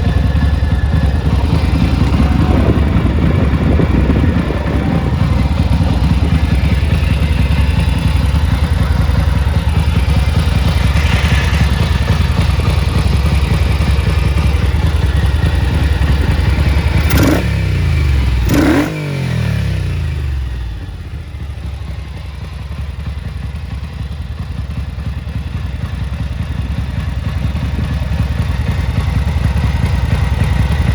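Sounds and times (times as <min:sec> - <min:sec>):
motorcycle engine revving: 0:00.0 - 0:30.9.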